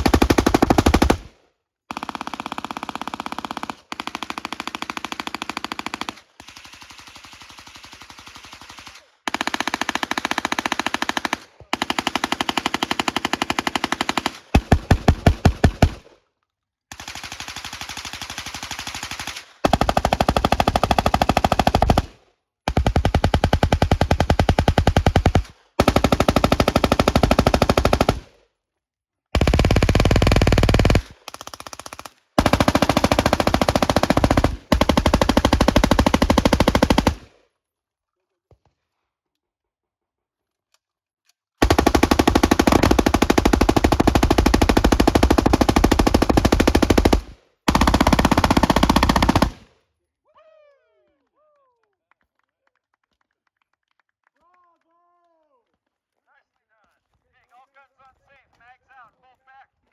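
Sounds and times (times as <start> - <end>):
submachine gun full-auto bursts: 0.0 - 16.0, 16.9 - 28.4, 29.4 - 37.4, 41.6 - 49.7.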